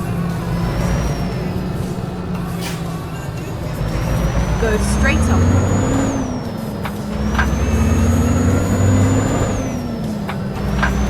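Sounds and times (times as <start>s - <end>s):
truck engine with high whine: 0.0s - 11.0s.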